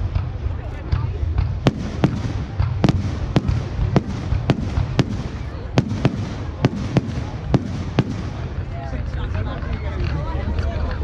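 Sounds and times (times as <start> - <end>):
fireworks bangs: 1.6 - 9.1.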